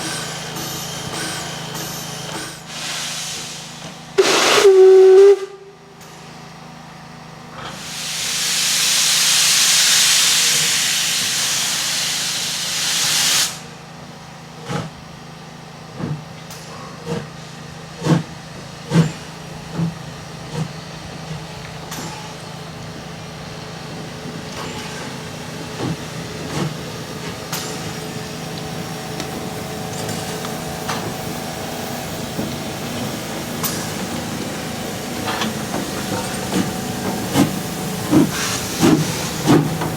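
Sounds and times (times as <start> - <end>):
loud hiss of released steam: 0.0 - 5.6, 7.6 - 13.9, 24.9 - 39.9
clicks of train wheels: 0.0 - 6.4, 14.6 - 15.0, 15.9 - 39.9
steam locomotive exhaust beats: 0.0 - 6.4, 15.8 - 39.9
train running: 0.0 - 39.9.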